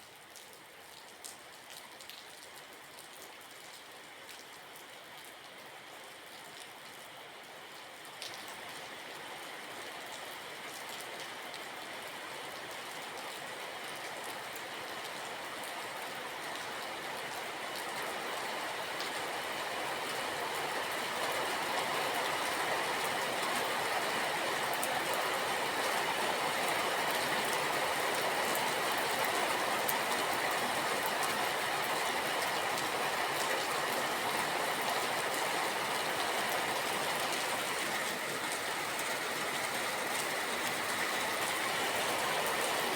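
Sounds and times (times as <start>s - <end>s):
steady rain hiss: 2.6s - 42.9s
rain drops ticking: 24.6s - 42.9s.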